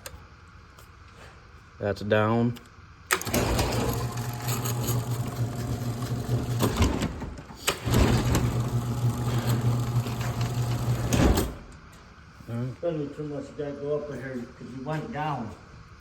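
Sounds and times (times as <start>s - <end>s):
door opener motor humming: 3.1s - 12.0s
motor stopping with a clunk: 3.1s - 12.0s.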